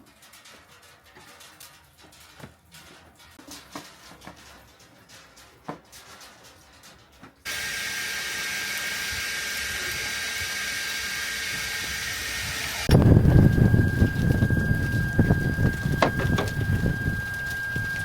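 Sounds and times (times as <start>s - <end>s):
small motor whirring: 7.5s - 18.0s.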